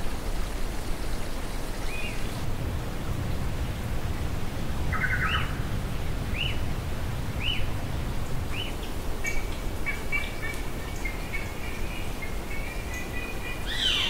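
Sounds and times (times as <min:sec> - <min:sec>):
low rumble: 0:02.4 - 0:09.2
rapid bird trill: 0:09.3 - 0:14.0.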